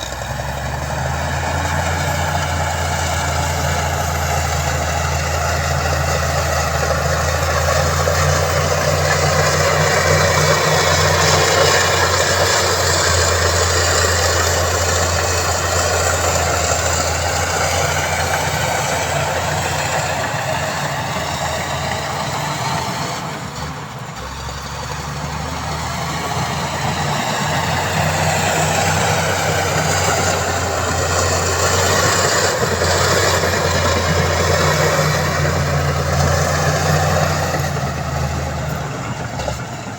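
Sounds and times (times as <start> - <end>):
heavy diesel engine under load: 0.0 - 39.9.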